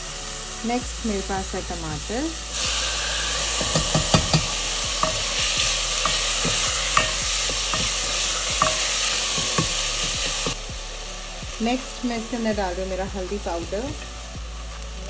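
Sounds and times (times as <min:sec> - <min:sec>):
vegetables sizzling in hot oil: 0:00.0 - 0:15.0
wooden spatula scraping a pot: 0:02.6 - 0:10.6.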